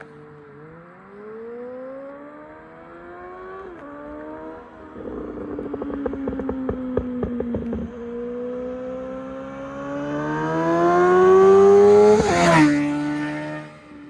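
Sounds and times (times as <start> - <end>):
motorcycle engine revving: 0.0 - 14.0
exhaust crackling and popping: 3.6 - 8.8.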